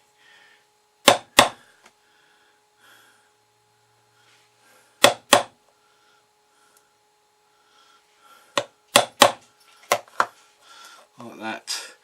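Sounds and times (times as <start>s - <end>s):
screwdriver tapping on cardboard: 5.0s - 5.5s, 8.6s - 10.3s.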